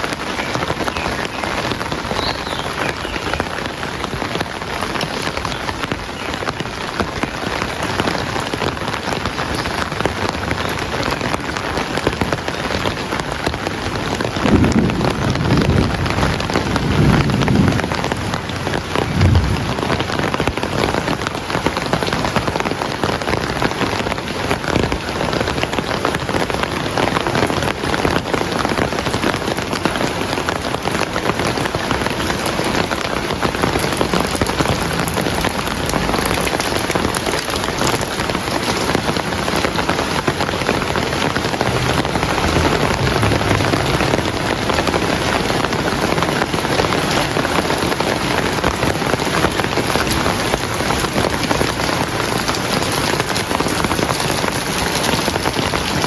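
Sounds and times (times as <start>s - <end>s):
heavy rain falling: 0.0s - 56.0s
distant thunder rumble: 14.2s - 21.8s, 32.0s - 51.8s.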